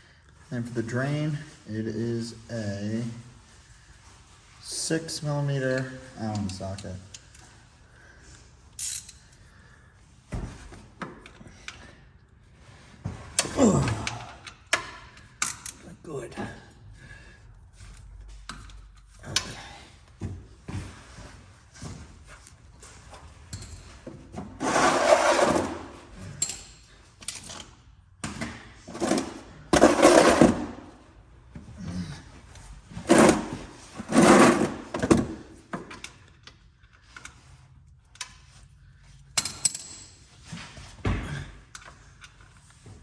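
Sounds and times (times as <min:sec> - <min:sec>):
tools scraping and rattling: 0:08.7 - 0:09.4, 0:22.8 - 0:31.1, 0:32.9 - 0:38.6, 0:39.3 - 0:40.9.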